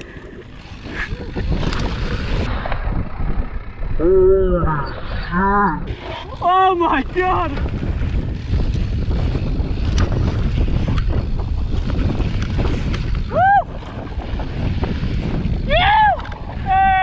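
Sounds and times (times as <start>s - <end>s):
wind buffeting microphone: 0.0s - 17.0s
person shouting: 13.3s - 13.7s, 15.7s - 17.0s.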